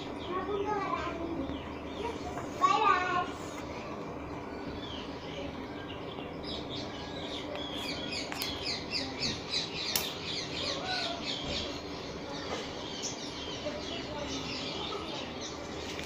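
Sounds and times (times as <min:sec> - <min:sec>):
small bird chirping: 0:04.4 - 0:16.0
sharp click: 0:09.9 - 0:10.2.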